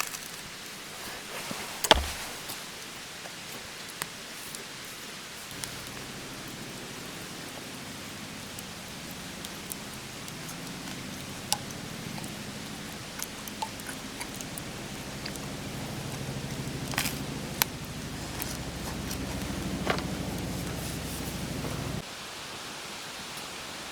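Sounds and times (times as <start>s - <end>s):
campfire hissing and rumbling: 0.2s - 23.9s
campfire crackling pops: 5.5s - 22.0s.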